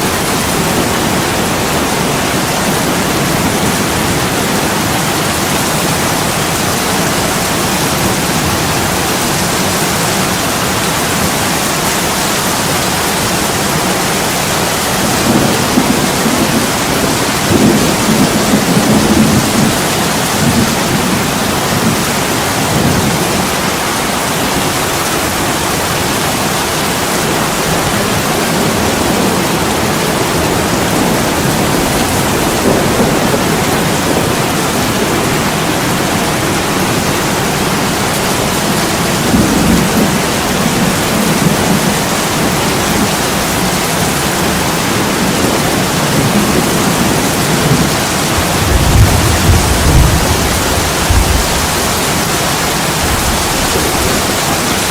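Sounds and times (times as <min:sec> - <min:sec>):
heavy rain on a window: 0:00.0 - 0:54.9.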